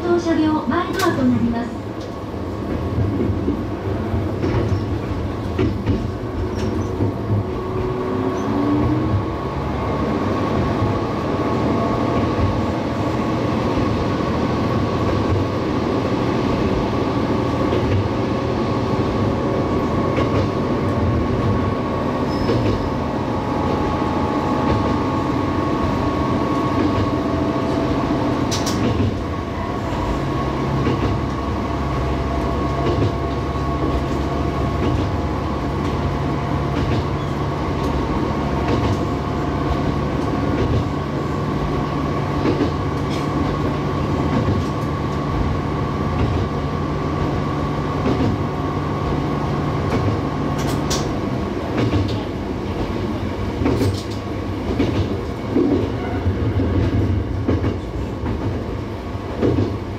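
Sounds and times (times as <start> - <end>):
railcar engine drone: 0.0 - 59.9
sharp clicks from rails: 0.8 - 59.9.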